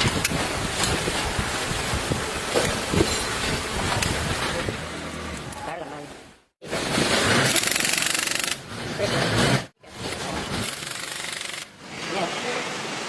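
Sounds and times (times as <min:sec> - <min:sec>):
power tool rattling: 0:06.7 - 0:11.8.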